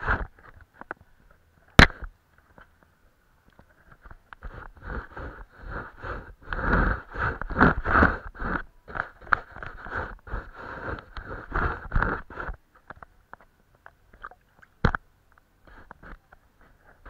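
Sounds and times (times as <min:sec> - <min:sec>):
paintbrush scratching on paper: 0:04.4 - 0:12.6.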